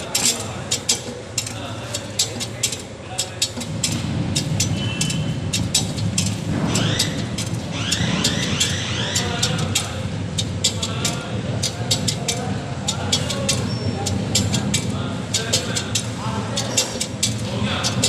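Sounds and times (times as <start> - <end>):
sharp metallic clicks: 0.0 - 18.0
rising squeaks: 6.6 - 9.8.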